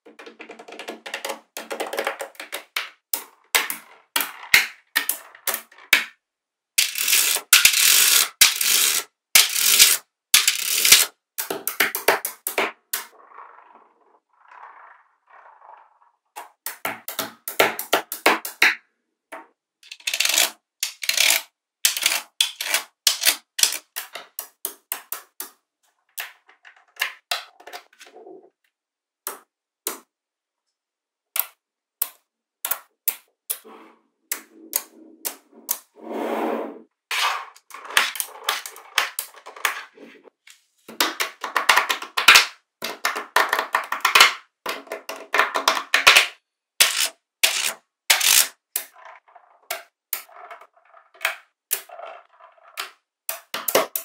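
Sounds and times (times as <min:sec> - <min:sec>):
balls rolling together: 0:00.0 - 0:28.6, 0:31.4 - 0:54.0
magnetic balls clicking: 0:06.8 - 0:13.3, 0:46.8 - 0:54.0.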